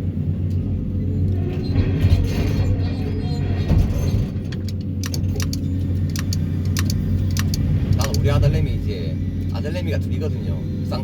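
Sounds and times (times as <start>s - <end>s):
excavator engine and hydraulics: 0.0s - 11.0s
sharp clicks and knocks: 4.5s - 8.3s.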